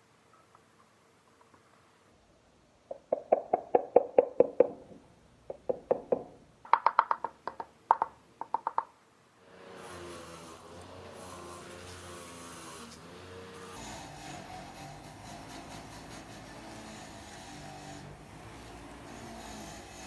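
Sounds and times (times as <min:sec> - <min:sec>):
rapid ringing knocks: 0:05.5 - 0:08.9.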